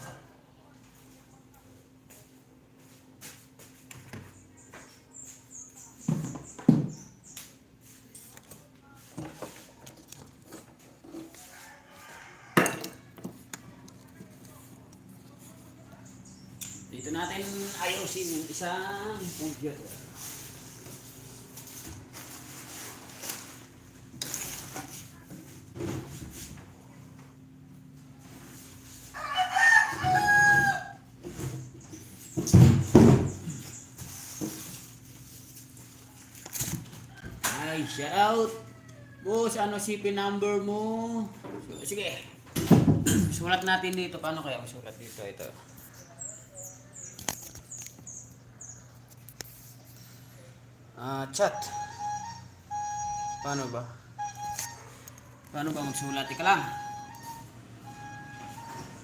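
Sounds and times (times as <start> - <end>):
rooster crowing: 11.2 - 13.2, 29.1 - 31.1, 37.1 - 39.8.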